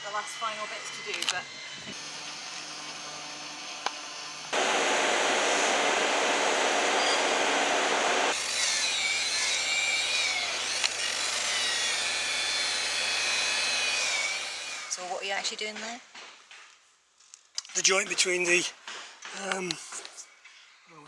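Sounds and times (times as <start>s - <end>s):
power sander grinding: 0.5s - 14.9s.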